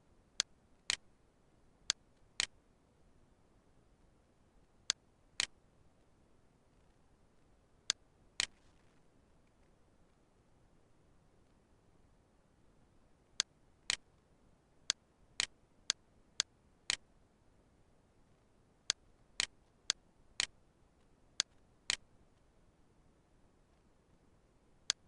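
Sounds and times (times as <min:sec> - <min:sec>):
computer mouse clicking: 0:07.9 - 0:08.6, 0:18.9 - 0:20.6.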